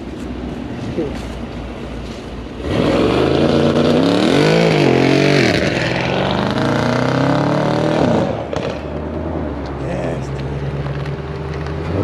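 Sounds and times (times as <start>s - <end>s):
car engine revving: 2.5s - 12.0s.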